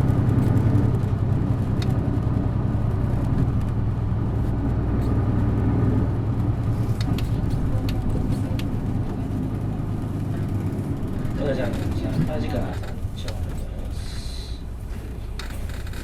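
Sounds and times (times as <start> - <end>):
bus diesel engine droning: 0.0 - 16.0
light rattling clicks: 7.0 - 9.2, 11.2 - 14.0.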